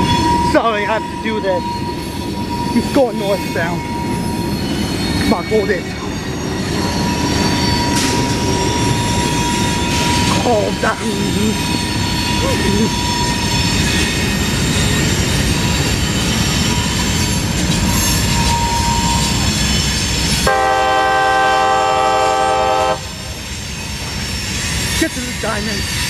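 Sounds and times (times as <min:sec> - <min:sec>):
wheel squeal: 0:00.0 - 0:20.4
freight locomotives rumbling: 0:00.0 - 0:26.0
locomotive horn blast: 0:20.4 - 0:23.2.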